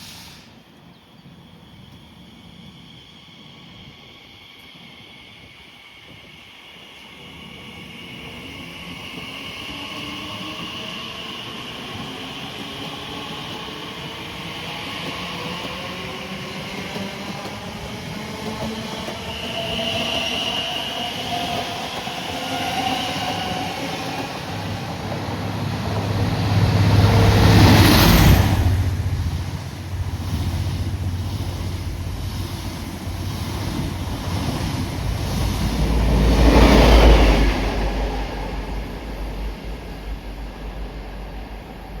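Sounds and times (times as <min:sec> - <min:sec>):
wheel and track noise: 0:15.0 - 0:37.5.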